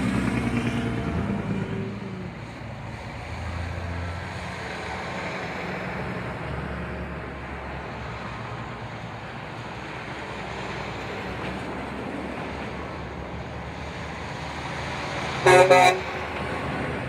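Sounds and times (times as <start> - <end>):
truck engines running: 0.0 - 17.0.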